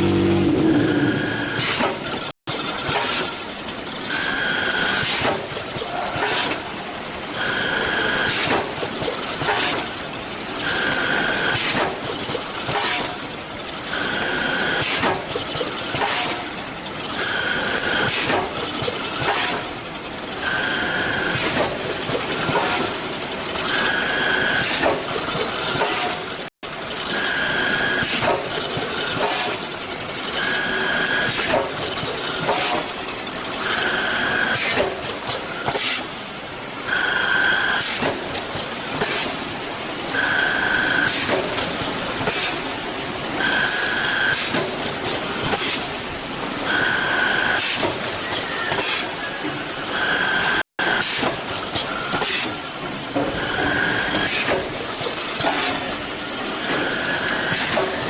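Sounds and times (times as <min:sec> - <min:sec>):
short high tone: 0:00.0 - 0:01.6.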